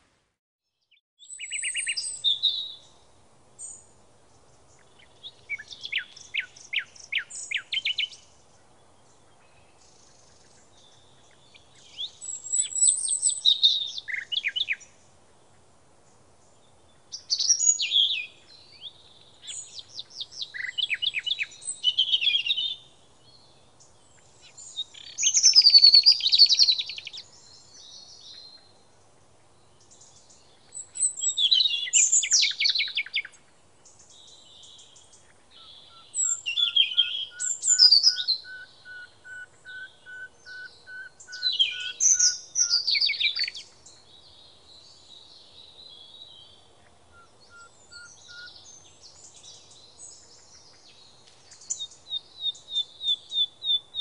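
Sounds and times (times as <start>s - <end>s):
songbird warbling with trills: 35.3s - 44.0s, 47.1s - 48.6s.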